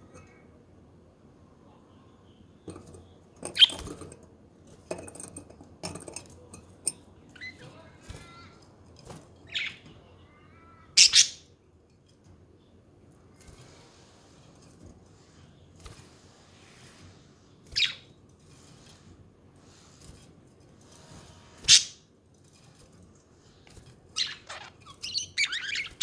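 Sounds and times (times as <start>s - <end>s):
budgerigars chirping and warbling: 9.5s - 10.0s, 11.0s - 11.4s, 24.2s - 26.0s.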